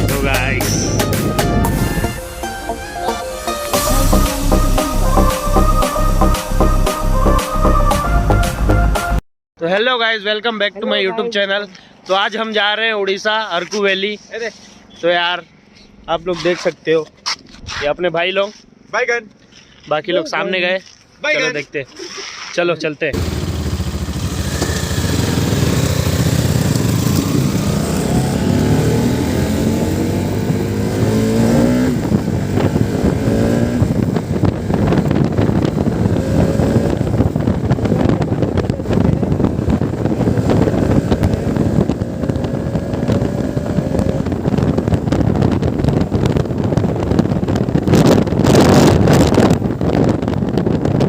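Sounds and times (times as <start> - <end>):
wind noise on microphone: 0.0 - 8.8, 15.8 - 18.2, 23.4 - 51.0
motorcycle engine shifting gears: 23.2 - 51.0.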